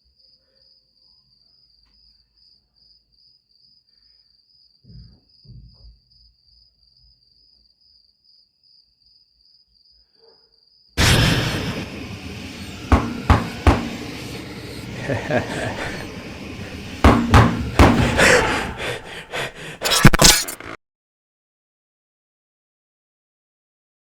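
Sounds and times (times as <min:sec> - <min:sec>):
loud burst of noise: 0:11.0 - 0:20.8.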